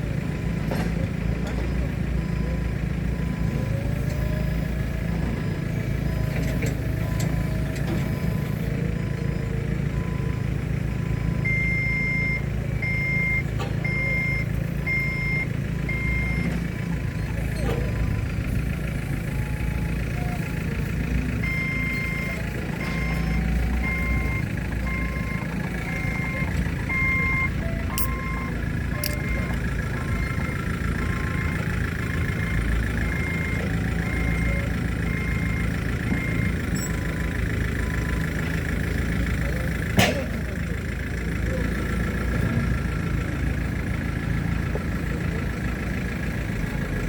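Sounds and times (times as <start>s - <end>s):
forklift engine hum: 0.0s - 47.0s
forklift reversing alarm beeping: 1.2s - 46.8s
brief clicks: 27.9s - 28.2s, 29.0s - 29.6s.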